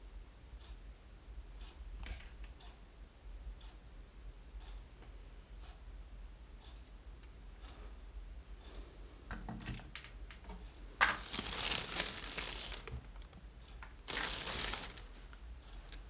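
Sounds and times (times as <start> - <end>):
wires clicking: 9.9 - 16.0
soldering flux sizzling: 14.0 - 15.4.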